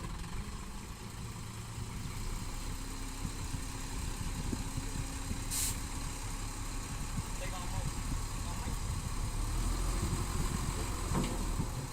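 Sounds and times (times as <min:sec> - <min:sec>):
diesel engine running: 0:00.0 - 0:11.9
short hiss: 0:05.5 - 0:05.9.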